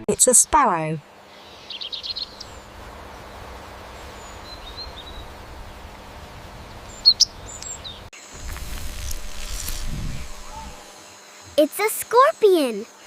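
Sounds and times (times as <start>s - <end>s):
background hiss: 0.9s - 13.0s
sparrow chirping: 1.4s - 2.6s, 4.0s - 5.4s, 6.7s - 8.1s
low rumble: 8.4s - 10.8s.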